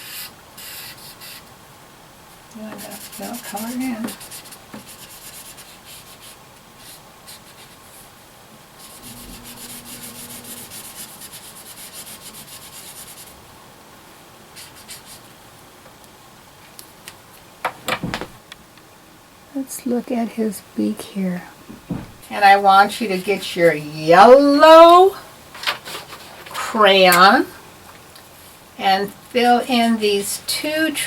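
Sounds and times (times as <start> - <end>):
marker scribbling on paper: 2.7 - 8.0.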